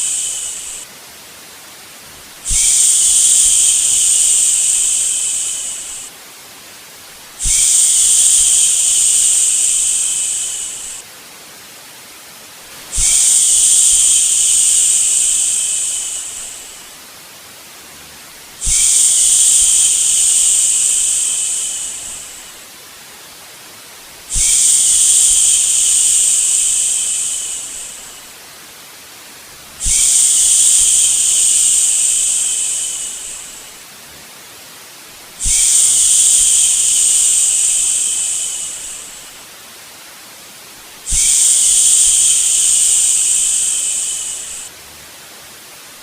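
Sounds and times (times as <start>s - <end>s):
person shushing: 0.0s - 0.8s, 2.5s - 6.1s, 12.9s - 16.9s, 18.6s - 22.6s, 24.3s - 28.2s, 29.8s - 33.8s, 35.4s - 39.4s, 41.1s - 44.7s
faint white-noise hiss: 0.0s - 46.0s.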